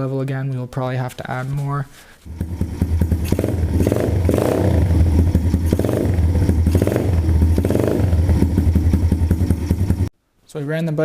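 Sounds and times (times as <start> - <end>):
pit bike engine running: 2.3 - 10.1.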